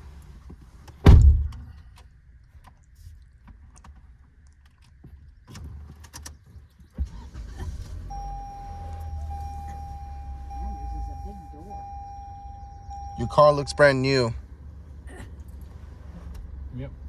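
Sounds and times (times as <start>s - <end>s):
clicks and knocks inside car: 0.4s - 2.8s
car door slamming: 1.0s - 1.6s
steady electronic tone: 8.1s - 14.3s.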